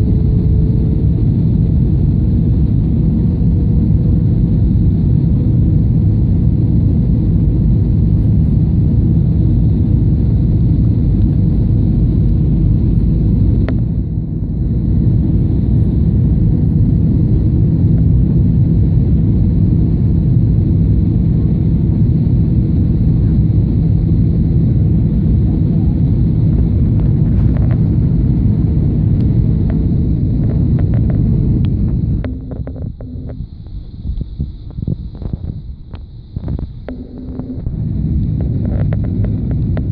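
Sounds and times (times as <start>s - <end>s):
jet engines rumbling: 0.0s - 39.9s
rushing air: 26.8s - 39.9s.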